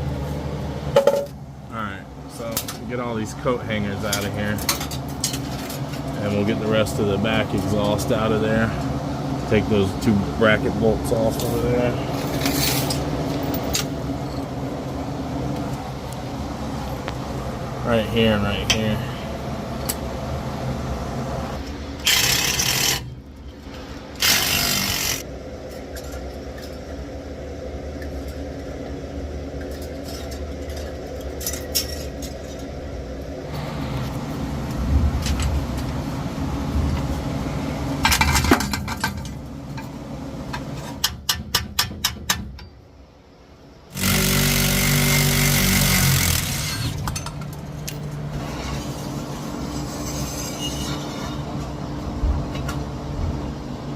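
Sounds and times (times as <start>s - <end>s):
low hum: 0.0s - 41.0s
power tool bursts: 22.0s - 23.1s, 24.2s - 25.2s, 43.9s - 47.0s.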